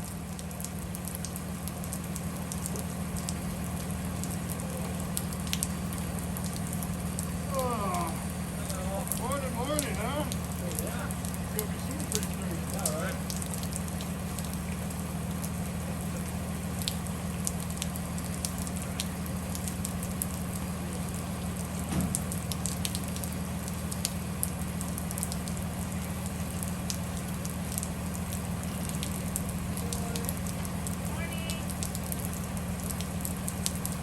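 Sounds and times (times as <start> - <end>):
bus engine and road drone: 0.0 - 34.0
rain pattering: 0.0 - 34.0.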